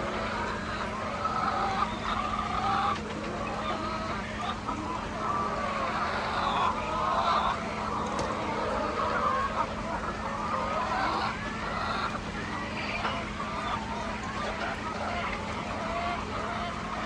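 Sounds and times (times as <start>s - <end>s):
chickens clucking: 0.0s - 17.0s
low steady hum: 0.0s - 17.0s.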